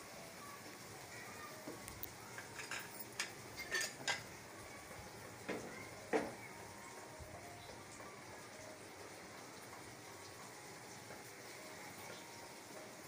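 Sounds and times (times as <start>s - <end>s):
omelette sizzling in pan: 0.0s - 13.0s
kitchen utensils clinking: 2.3s - 4.4s.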